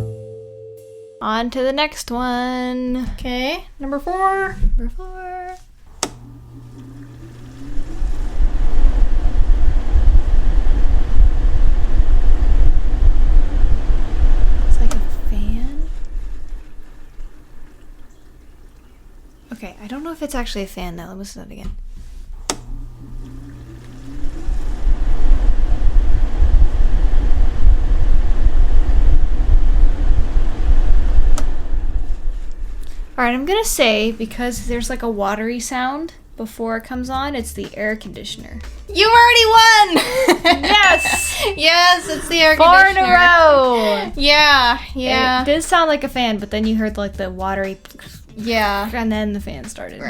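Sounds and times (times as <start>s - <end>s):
air conditioner hum and whine: 3.4s - 37.5s, 38.4s - 46.0s
fan rushing air: 5.6s - 20.7s, 21.8s - 37.7s, 38.4s - 46.4s.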